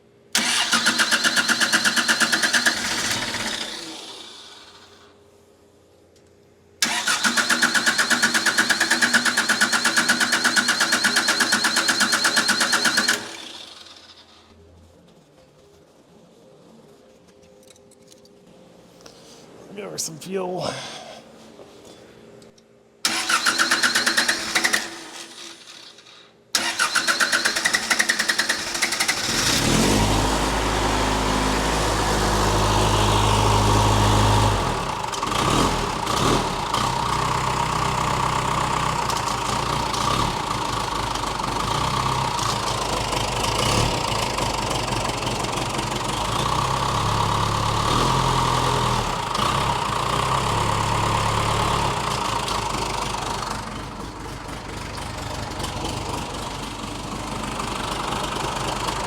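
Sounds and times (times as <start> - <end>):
starter cranking diesel engine: 0.4 - 4.9, 6.8 - 14.2, 23.0 - 59.0
diesel engine idling: 36.0 - 59.0.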